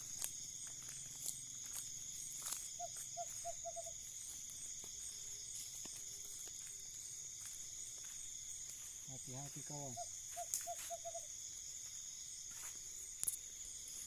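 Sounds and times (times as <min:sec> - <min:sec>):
high-pitched insect chorus: 0:00.0 - 0:14.0
owl hooting: 0:02.8 - 0:04.1, 0:09.7 - 0:11.3.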